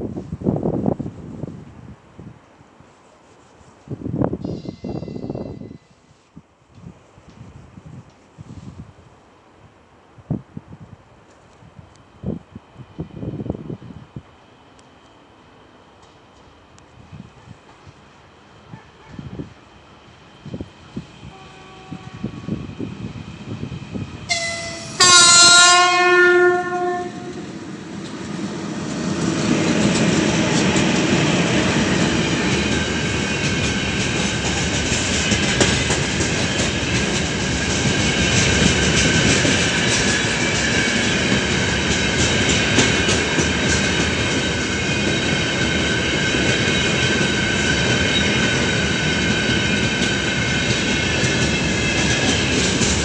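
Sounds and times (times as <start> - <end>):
locomotive horn blast: 21.3 - 22.4, 24.3 - 27.5
wheels clacking over rail joints: 27.4 - 53.0.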